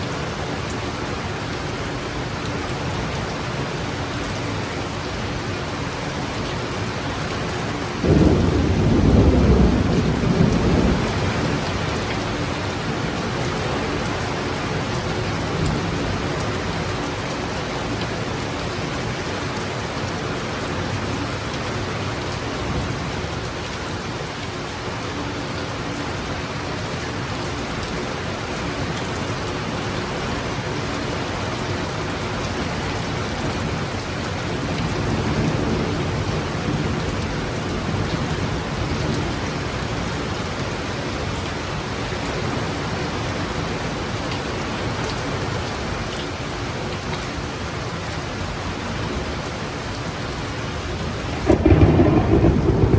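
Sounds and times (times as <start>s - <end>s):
heavy rain downpour: 0.0s - 52.9s
thunder crack and rumble: 8.0s - 12.2s, 51.4s - 52.9s.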